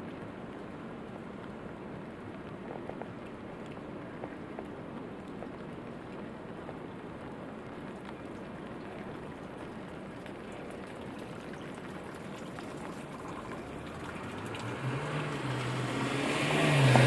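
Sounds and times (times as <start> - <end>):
steady rainfall: 0.0 - 17.0
vehicle engine hum: 12.4 - 17.0
tyre hiss on wet road: 12.7 - 17.0.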